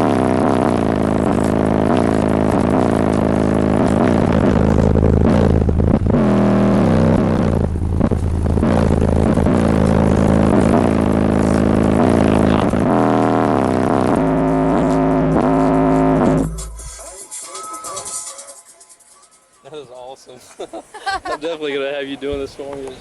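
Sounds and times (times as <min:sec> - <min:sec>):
loud rap music with heavy bass: 0:10.0 - 0:19.2.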